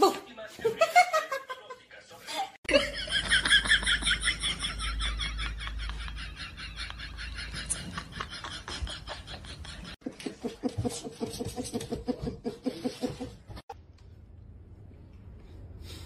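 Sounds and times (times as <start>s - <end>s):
person laughing: 2.7s - 10.7s.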